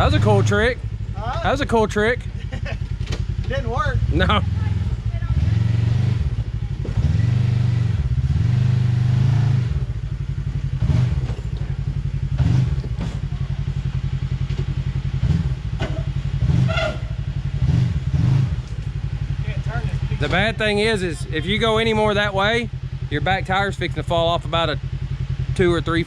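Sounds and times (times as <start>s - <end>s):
utv engine revving: 0.0s - 26.0s
sharp knocks and clunks: 12.4s - 13.3s, 14.4s - 16.1s.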